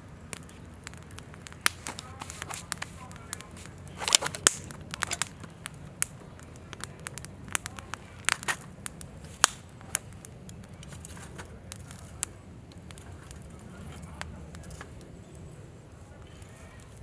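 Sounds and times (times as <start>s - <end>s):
campfire crackling: 0.0s - 17.0s
sharp pops from burning wood: 0.0s - 17.0s.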